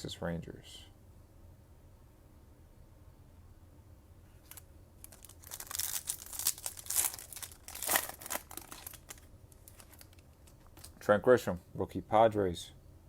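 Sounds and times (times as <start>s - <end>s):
foil wrapper crinkling and tearing: 4.4s - 11.0s.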